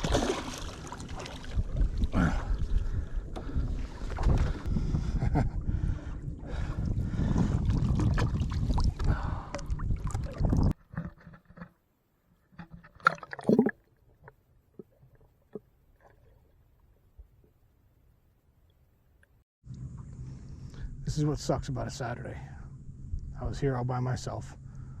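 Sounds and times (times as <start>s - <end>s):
water sloshing around boat: 0.0s - 4.7s
wind buffeting microphone: 1.3s - 10.8s.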